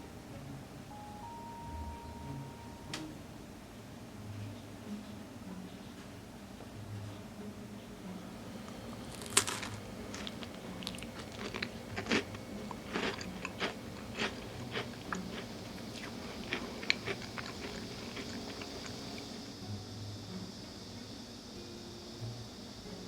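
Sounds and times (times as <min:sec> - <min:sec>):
chewing with crunches: 0:08.6 - 0:19.5
biting honeycomb: 0:08.7 - 0:19.4.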